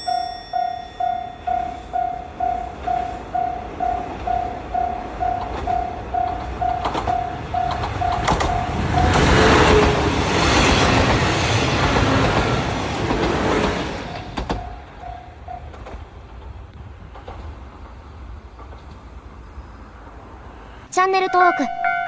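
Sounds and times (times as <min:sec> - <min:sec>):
level crossing warning bell: 0:00.0 - 0:10.8, 0:12.3 - 0:15.9, 0:21.0 - 0:22.0
train wheels clattering: 0:00.0 - 0:19.8.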